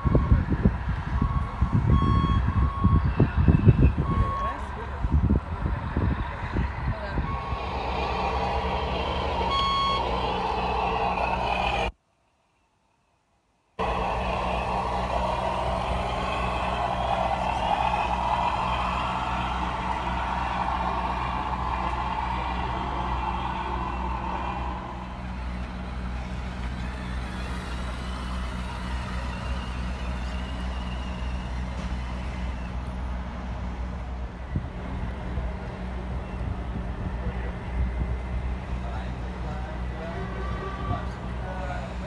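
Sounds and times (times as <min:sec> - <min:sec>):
low engine-like drone: 0:00.0 - 0:12.0, 0:13.8 - 0:42.0
higher motor whine: 0:02.5 - 0:12.0, 0:13.8 - 0:34.1.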